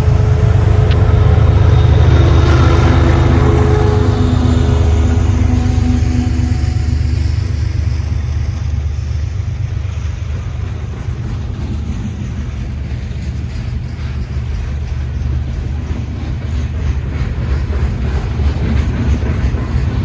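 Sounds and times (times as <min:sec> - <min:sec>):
higher engine tones: 0:00.0 - 0:11.5
diesel train rumbling: 0:00.0 - 0:20.0.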